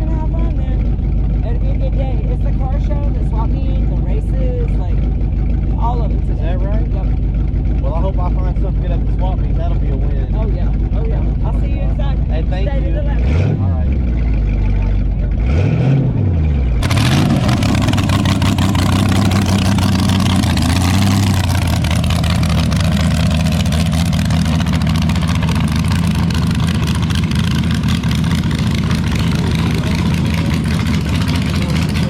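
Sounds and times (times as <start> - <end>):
loud engine running steadily: 0.0 - 32.0
car engine rising and falling: 8.9 - 32.0.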